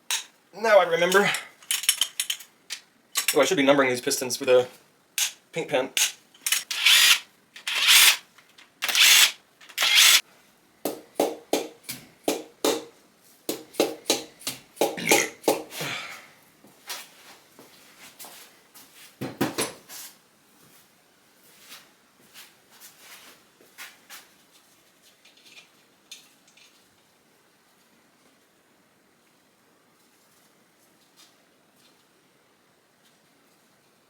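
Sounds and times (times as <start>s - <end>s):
sharp noisy tool strokes: 6.0s - 8.2s, 8.8s - 10.2s.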